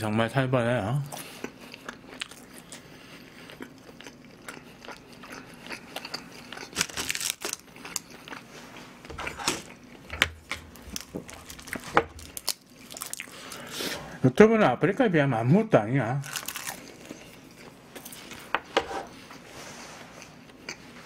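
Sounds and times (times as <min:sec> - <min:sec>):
chewing crunchy food: 0:01.0 - 0:13.8, 0:16.2 - 0:18.5.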